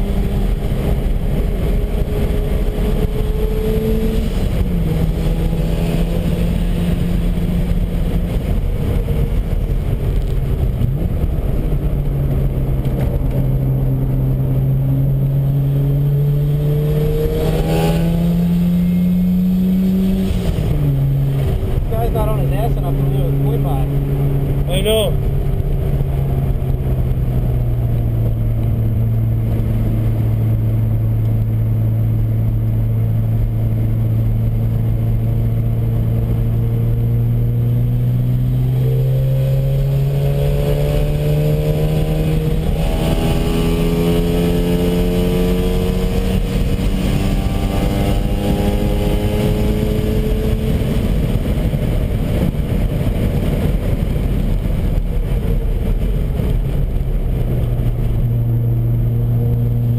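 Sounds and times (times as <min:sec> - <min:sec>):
road and wind noise: 0:00.0 - 0:59.9
rotary engine from inside car: 0:31.1 - 0:59.9.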